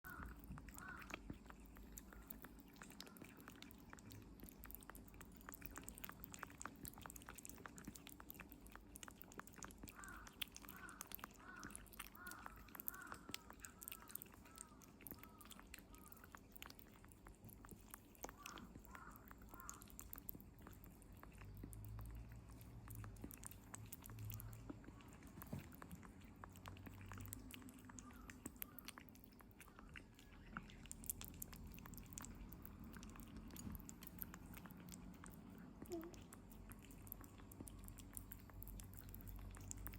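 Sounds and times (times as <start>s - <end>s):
kitten chewing wetly: 0.0s - 39.9s
kitten squeaking: 35.8s - 36.3s.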